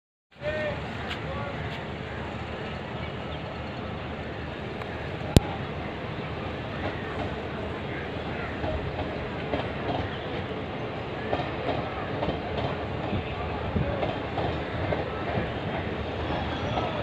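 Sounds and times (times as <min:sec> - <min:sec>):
train wheels clattering over rails: 0:06.5 - 0:10.6, 0:11.2 - 0:17.0.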